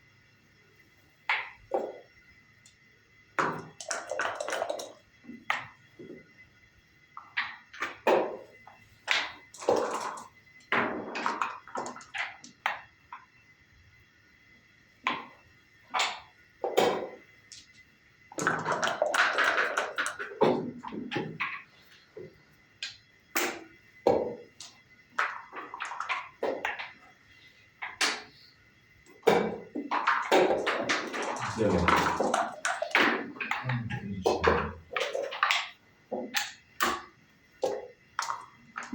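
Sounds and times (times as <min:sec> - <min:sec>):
dice bouncing on wooden board: 0:29.2 - 0:37.0.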